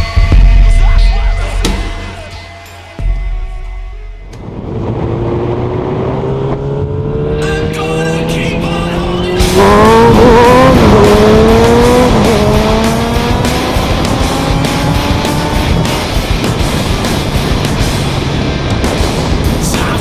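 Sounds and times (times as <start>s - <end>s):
motorcycle engine accelerating: 4.4s - 19.5s.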